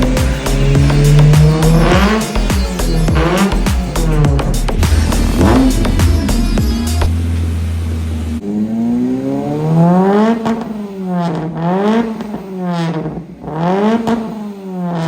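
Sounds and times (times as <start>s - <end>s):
music: 0.0s - 8.4s
car engine revving: 0.0s - 15.0s.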